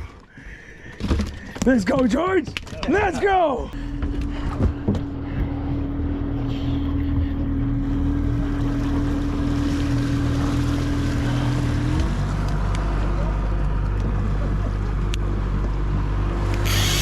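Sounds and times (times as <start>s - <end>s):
boat engine running: 3.8s - 17.0s
water noise: 6.5s - 12.7s.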